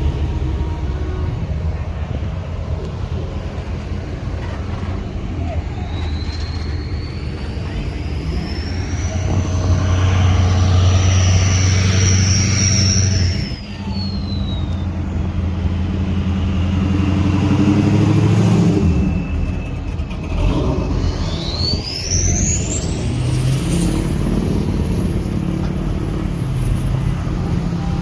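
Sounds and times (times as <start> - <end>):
high whine: 0.0 - 28.0
car engine revving: 7.6 - 13.6.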